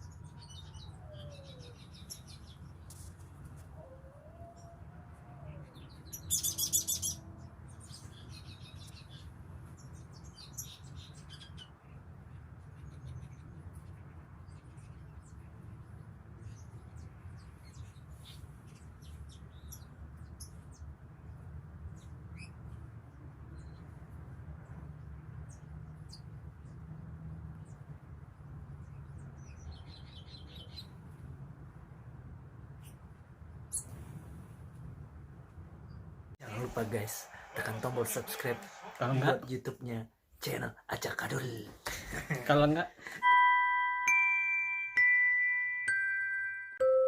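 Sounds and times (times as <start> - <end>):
small birds chirping: 0.0 - 31.4, 32.6 - 34.8.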